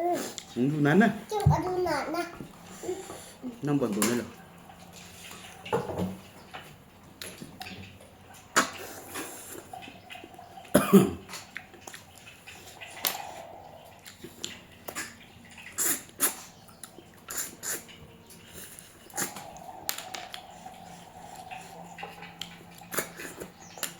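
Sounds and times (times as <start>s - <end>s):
eating slurps and smacks: 11.2s - 23.9s.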